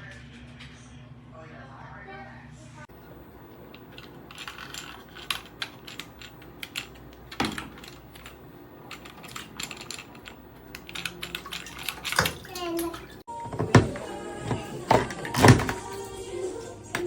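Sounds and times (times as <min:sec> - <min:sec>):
hard objects clicking: 0:03.6 - 0:13.1.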